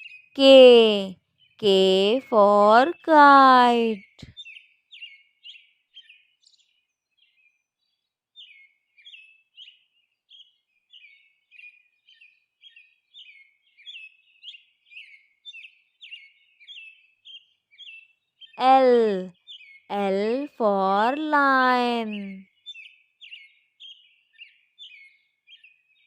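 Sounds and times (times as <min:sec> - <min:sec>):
faint small bird chirping: 0:00.0 - 0:00.4, 0:04.0 - 0:18.6, 0:21.7 - 0:26.0.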